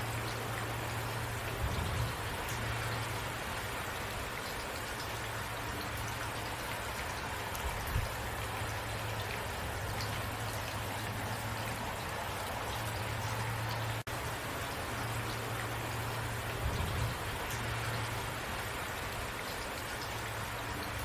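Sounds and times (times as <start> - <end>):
steady rain: 0.0 - 21.0.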